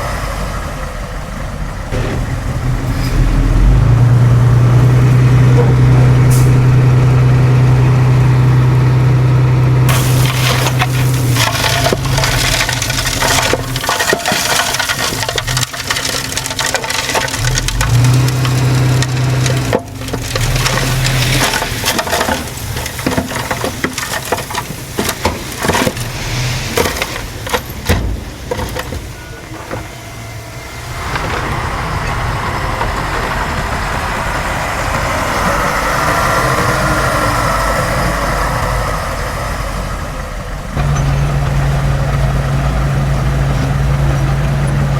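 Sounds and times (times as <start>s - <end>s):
diesel machine engine running: 0.0s - 44.9s
material crunching and cracking: 9.9s - 26.1s.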